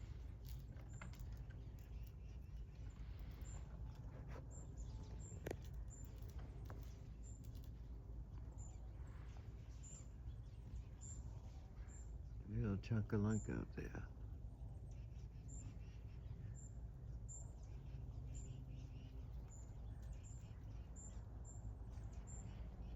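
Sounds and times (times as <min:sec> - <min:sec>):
low outdoor rumble: 0:00.0 - 0:22.9
small birds chirping: 0:00.0 - 0:22.9.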